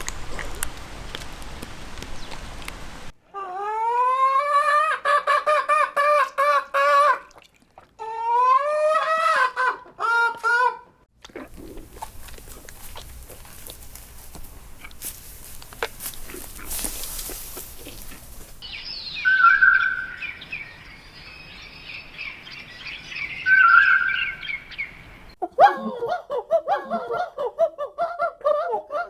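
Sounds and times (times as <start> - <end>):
small birds chirping: 0.0 - 3.1, 11.5 - 25.4
noisy rustle: 0.0 - 3.2, 11.5 - 18.6
short low bird calls: 17.6 - 25.4
short whistled bird calls: 18.6 - 21.3.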